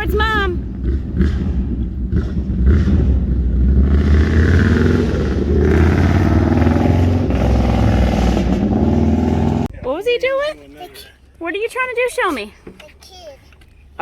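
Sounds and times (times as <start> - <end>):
small motorcycle engine droning: 0.0 - 9.7.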